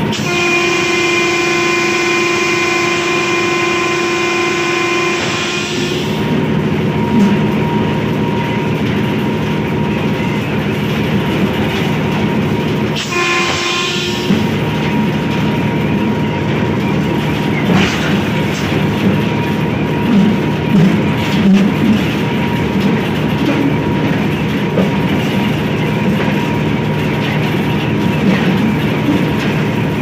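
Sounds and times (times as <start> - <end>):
multi-tone train horn: 0.0 - 6.4, 12.9 - 15.3
train rumbling on track: 0.0 - 30.0.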